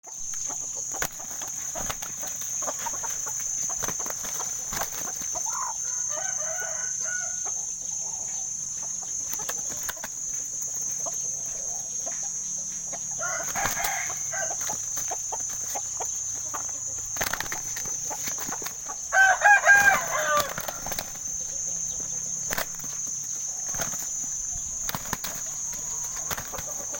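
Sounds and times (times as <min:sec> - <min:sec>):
roosters calling: 0:00.0 - 0:26.9.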